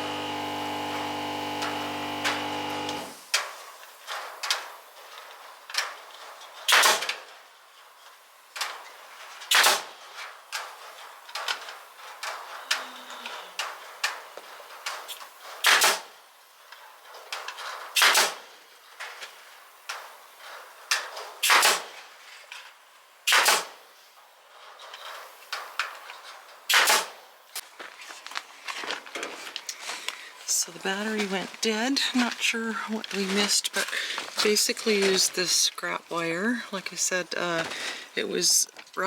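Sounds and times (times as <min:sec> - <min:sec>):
staple gun firing into wood: 0:06.7 - 0:07.2, 0:09.5 - 0:09.9, 0:15.6 - 0:16.1, 0:18.0 - 0:18.4, 0:21.4 - 0:21.9, 0:23.3 - 0:23.8, 0:26.7 - 0:27.2.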